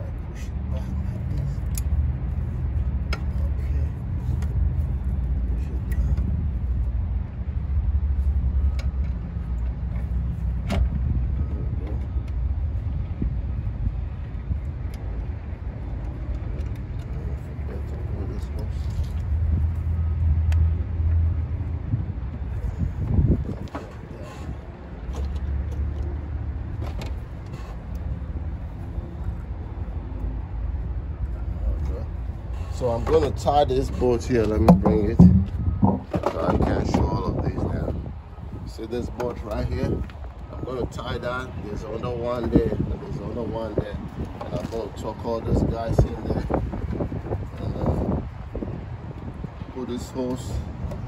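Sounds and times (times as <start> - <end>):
motor vehicle rumbling: 0.0 - 51.0
steady low rumble: 33.5 - 38.8
light metallic clicks and knocks: 34.4 - 36.8.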